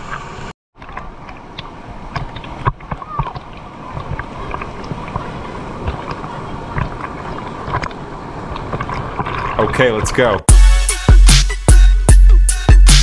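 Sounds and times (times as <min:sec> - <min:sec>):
splashes and knocks: 0:00.8 - 0:09.8.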